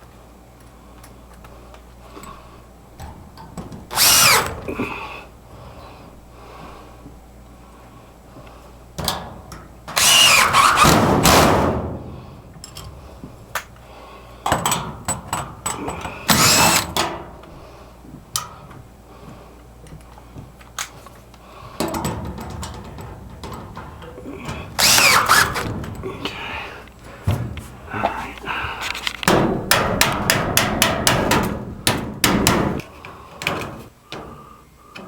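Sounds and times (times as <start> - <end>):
power drill running: 3.9 - 4.6, 9.9 - 11.0, 16.3 - 16.9, 24.8 - 25.7.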